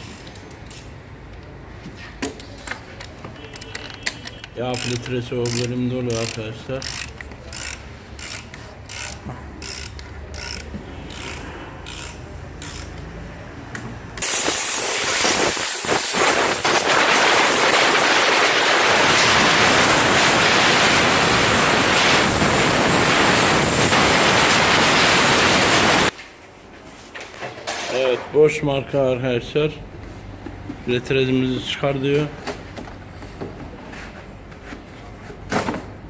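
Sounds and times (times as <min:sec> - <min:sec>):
hand ratchet clicking: 0:03.6 - 0:13.1
loud rushing hiss: 0:14.2 - 0:26.1.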